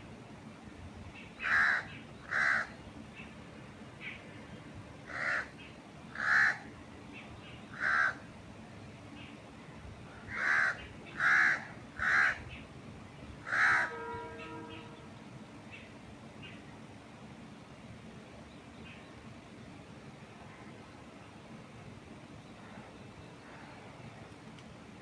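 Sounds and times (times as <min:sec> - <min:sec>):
bird calling harshly: 0:01.4 - 0:02.7, 0:05.1 - 0:05.6, 0:06.2 - 0:06.6.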